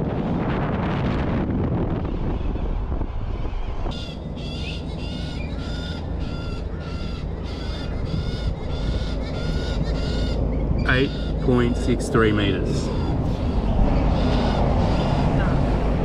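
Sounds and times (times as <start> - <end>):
low background rumble: 0.0 - 16.0
bird giving harsh calls: 3.9 - 15.8.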